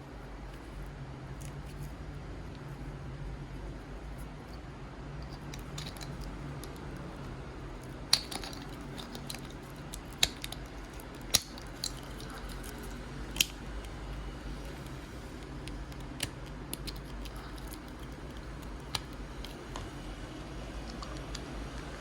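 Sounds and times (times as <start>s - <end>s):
steady low hum: 0.0s - 22.0s
sharp clicks of small objects: 7.8s - 13.9s.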